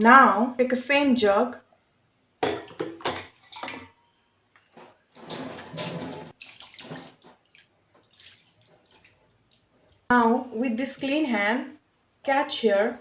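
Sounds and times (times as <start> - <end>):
water poured and splashing: 3.2 - 4.0, 5.2 - 10.1.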